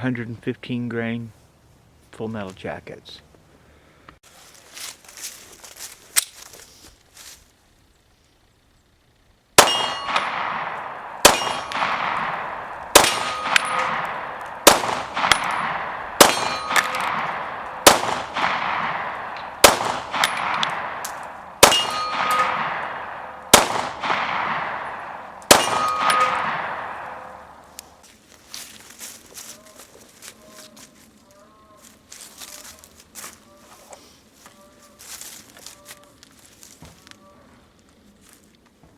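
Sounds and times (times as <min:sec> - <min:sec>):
metallic ringing: 0:09.6 - 0:27.7
pistol shots: 0:09.6 - 0:27.8.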